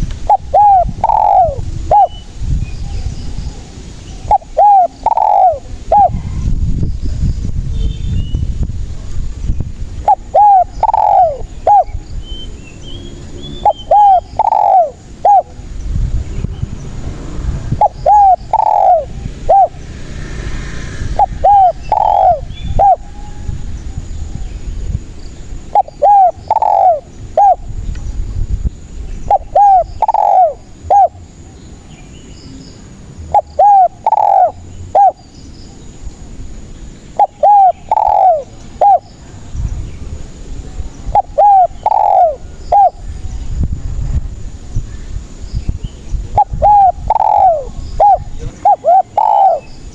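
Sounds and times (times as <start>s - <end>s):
dove cooing: 0.0s - 2.3s, 3.0s - 6.4s, 10.0s - 12.0s, 13.6s - 15.6s, 17.6s - 19.9s, 21.2s - 23.5s, 25.6s - 27.7s, 29.3s - 31.6s, 33.3s - 35.3s, 37.1s - 39.2s, 41.1s - 43.0s, 46.3s - 49.9s.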